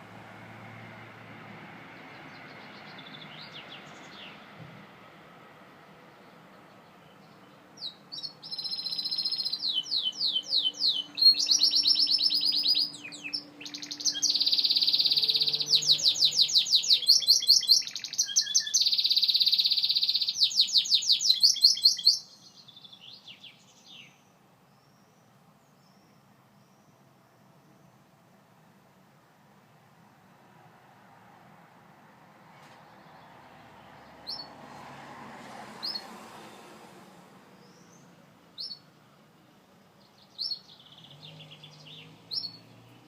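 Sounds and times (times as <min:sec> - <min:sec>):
canary singing trills: 0:07.0 - 0:25.2, 0:34.2 - 0:34.6, 0:37.6 - 0:38.9, 0:40.0 - 0:43.0.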